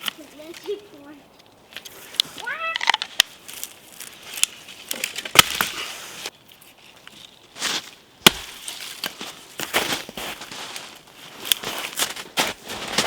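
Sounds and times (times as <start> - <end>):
wood being chopped: 5.3 - 5.8, 8.2 - 9.9.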